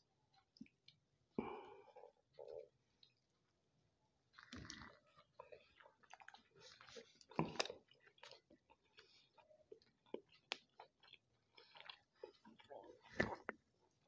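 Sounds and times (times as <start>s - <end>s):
man chewing: 4.3s - 14.0s.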